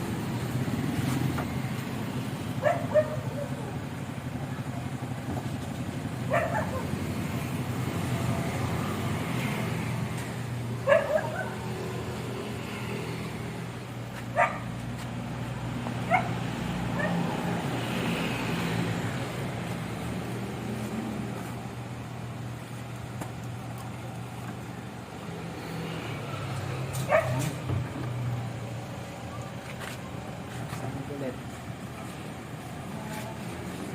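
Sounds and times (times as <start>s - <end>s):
dog barking: 2.6s - 3.5s, 6.3s - 7.0s, 10.8s - 11.6s, 14.3s - 14.7s, 16.1s - 16.4s, 17.0s - 17.2s, 27.0s - 27.6s.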